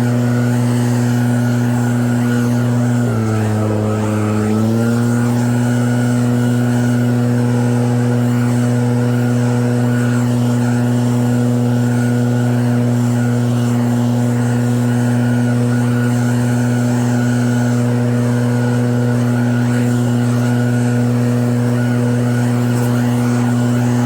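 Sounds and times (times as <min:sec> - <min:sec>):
snowblower engine running: 0:00.0 - 0:24.0.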